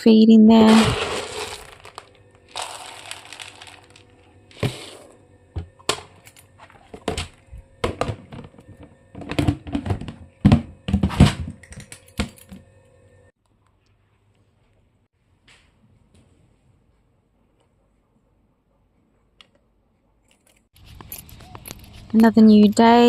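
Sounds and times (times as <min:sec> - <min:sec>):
containers knocking and clicking: 0:00.6 - 0:04.9, 0:06.9 - 0:12.4
dry pet food pouring: 0:00.6 - 0:05.2.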